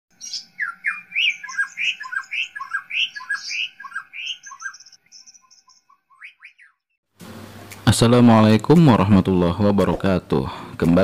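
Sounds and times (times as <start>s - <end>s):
birds chirping: 0.1s - 7.0s
high twittering bird trill: 0.1s - 7.0s.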